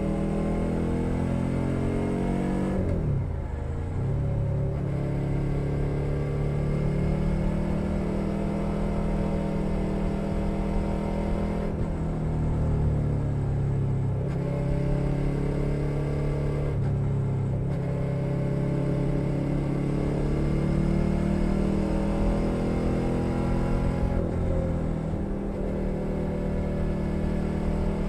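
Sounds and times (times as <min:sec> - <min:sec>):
motorcycle engine under way: 0:14.2 - 0:28.0.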